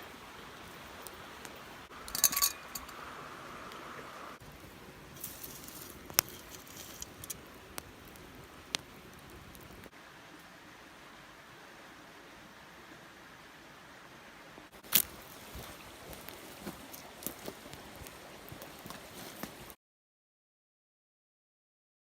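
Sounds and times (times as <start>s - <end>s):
small metallic objects clinking: 2.0s - 3.0s.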